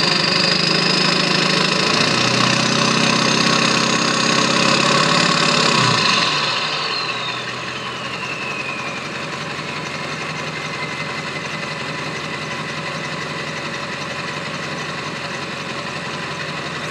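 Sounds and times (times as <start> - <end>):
diesel engine idling: 0.0 - 16.9
turbo whistle falling in pitch: 4.3 - 9.3.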